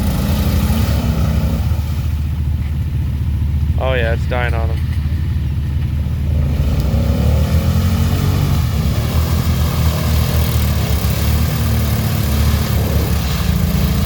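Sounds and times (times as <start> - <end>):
off-road vehicle engine rumbling: 0.0 - 14.0.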